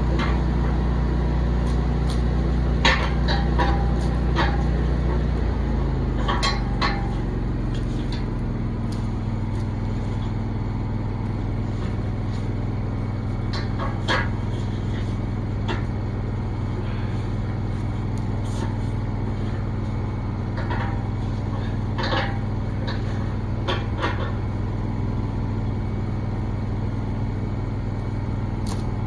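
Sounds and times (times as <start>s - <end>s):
engine running: 0.0s - 29.0s
metallic knocks and clanks: 1.6s - 5.3s, 6.1s - 9.9s, 13.4s - 16.1s, 20.4s - 24.6s.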